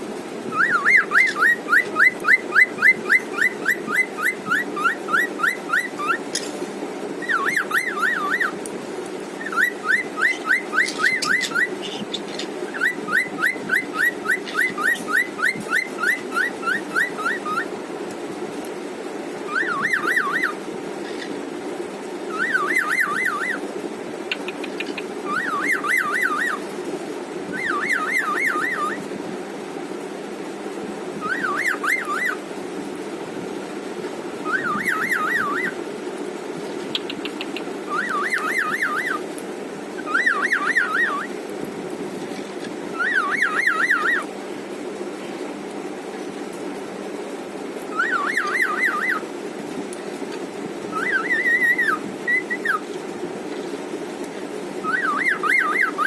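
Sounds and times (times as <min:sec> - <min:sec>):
cockatiel whistling song: 0:00.5 - 0:06.4, 0:07.2 - 0:08.6, 0:09.4 - 0:17.7, 0:19.5 - 0:21.3, 0:22.3 - 0:23.6, 0:24.4 - 0:26.6, 0:27.5 - 0:29.1, 0:31.2 - 0:32.4, 0:34.4 - 0:35.8, 0:36.9 - 0:39.2, 0:40.0 - 0:41.3, 0:42.9 - 0:44.3, 0:47.9 - 0:49.3, 0:50.9 - 0:52.9, 0:54.8 - 0:56.0.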